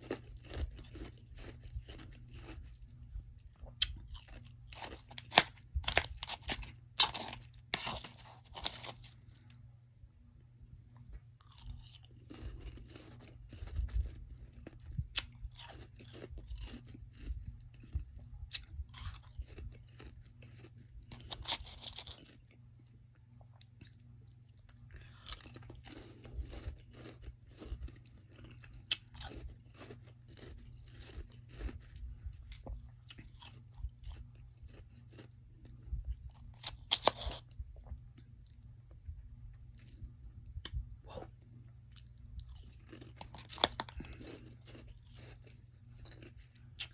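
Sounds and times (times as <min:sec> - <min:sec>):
chewing and crunching frost: 0:00.0 - 0:09.7, 0:10.8 - 0:46.9
low hum: 0:29.5 - 0:46.9.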